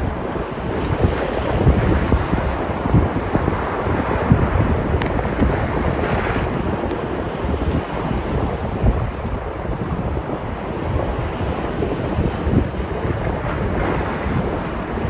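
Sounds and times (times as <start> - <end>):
waves breaking on shore: 0.0 - 15.0
wind buffeting microphone: 0.0 - 15.0.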